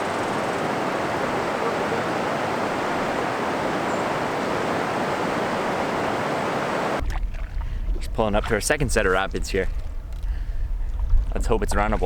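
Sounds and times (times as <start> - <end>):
whitewater rushing over rapids: 0.0 - 7.0.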